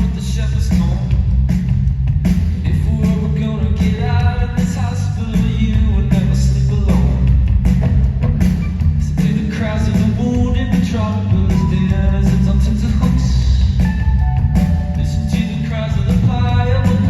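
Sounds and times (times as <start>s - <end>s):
booming bass: 0.0s - 17.0s
live band playing: 5.4s - 17.0s
drum strokes: 5.5s - 17.0s.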